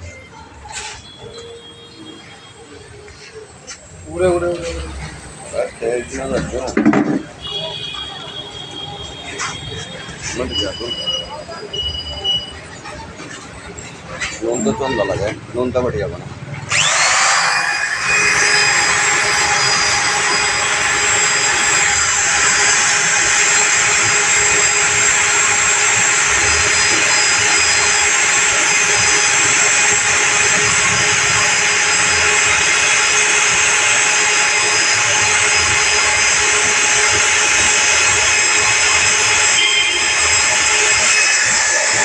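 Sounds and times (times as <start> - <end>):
power tool motor whining: 16.7 - 42.0.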